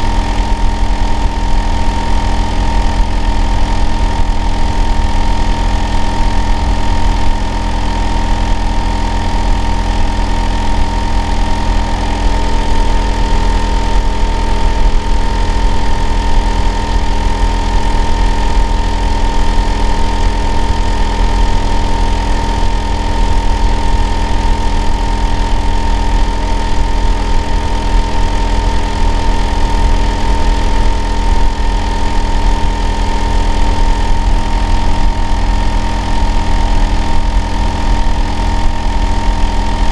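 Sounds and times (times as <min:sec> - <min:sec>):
constant whining tone: 0:00.0 - 0:39.9.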